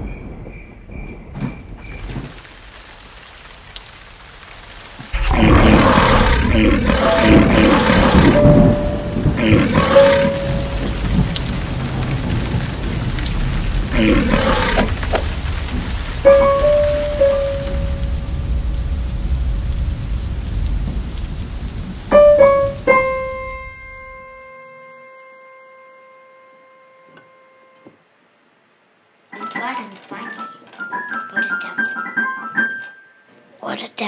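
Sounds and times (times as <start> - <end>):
rain and thunder: 0.0 - 24.4
long held musical notes: 7.0 - 11.5, 16.3 - 18.6, 22.1 - 27.9.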